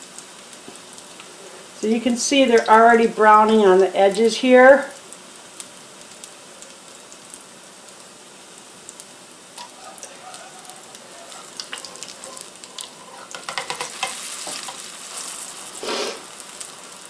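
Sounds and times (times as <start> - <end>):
fritters sizzling in oil: 0.0 - 17.0
oil popping and crackling: 0.0 - 17.0
metal spatula scraping pan: 9.6 - 16.3.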